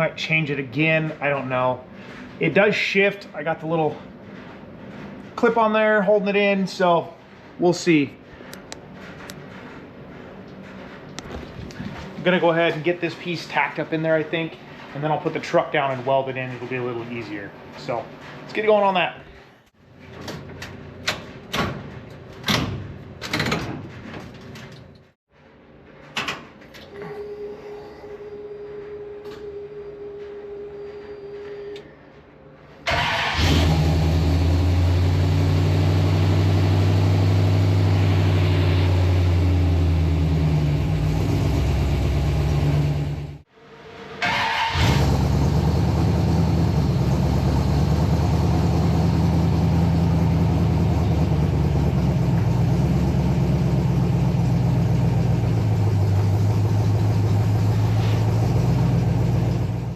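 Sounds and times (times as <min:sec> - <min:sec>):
pickup engine running: 0:33.0 - 0:43.4, 0:44.8 - 0:59.9.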